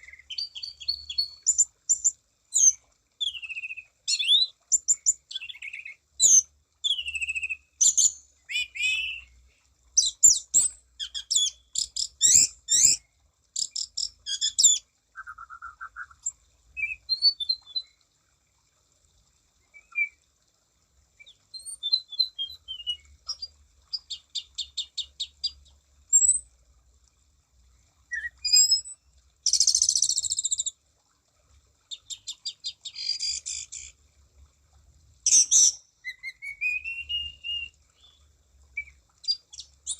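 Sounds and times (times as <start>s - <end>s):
thrush singing whistles and trills: 12.2s - 13.1s, 13.7s - 18.0s, 21.2s - 23.5s, 28.1s - 30.7s, 35.3s - 38.2s.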